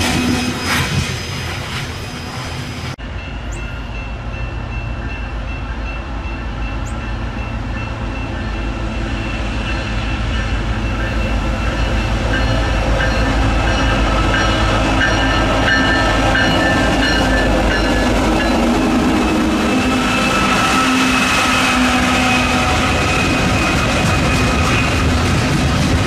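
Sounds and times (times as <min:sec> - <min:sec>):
diesel locomotive engines running: 0:00.0 - 0:26.0
steel wheels rolling on rails: 0:05.5 - 0:26.0.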